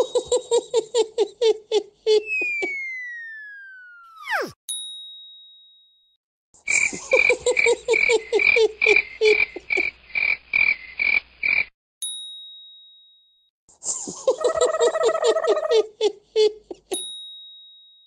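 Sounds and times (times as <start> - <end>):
bell-like ding: 4.7 - 6.2, 12.0 - 13.5, 17.0 - 18.0.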